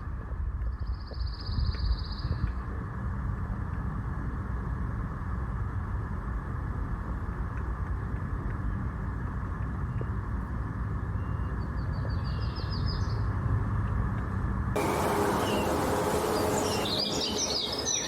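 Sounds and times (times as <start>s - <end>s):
low outdoor rumble: 13.3s - 18.0s
bird trill: 14.8s - 18.0s.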